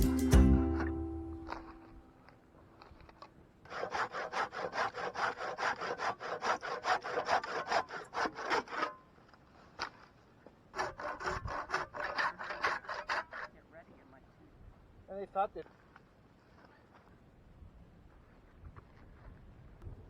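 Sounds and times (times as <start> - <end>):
hand saw cutting wood: 3.2 - 9.1, 10.7 - 13.6.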